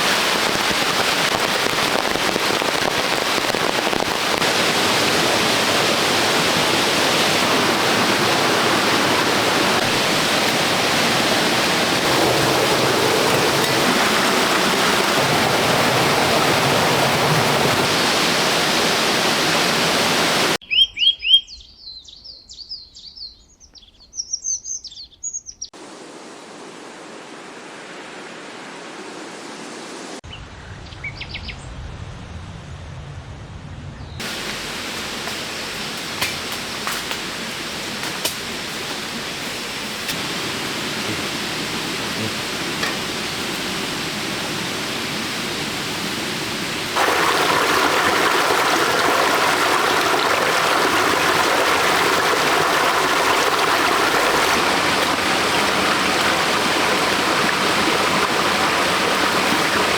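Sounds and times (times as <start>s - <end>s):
running water rushing: 0.0s - 20.6s, 34.2s - 59.9s
birds chirping: 20.6s - 25.8s.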